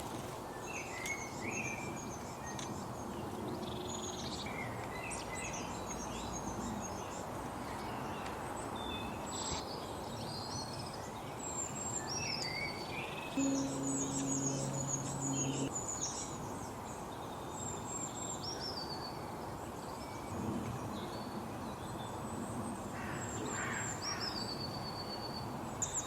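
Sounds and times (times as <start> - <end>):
songbirds chirping: 0.6 - 15.7.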